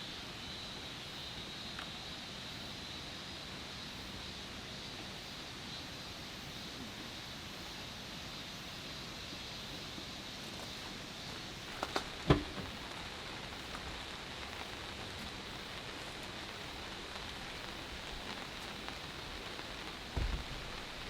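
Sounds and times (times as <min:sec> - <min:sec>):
steady rain falling: 0:00.0 - 0:21.0
light knocks: 0:11.8 - 0:12.7, 0:20.2 - 0:20.6
loud thump: 0:12.2 - 0:12.8, 0:20.2 - 0:20.6.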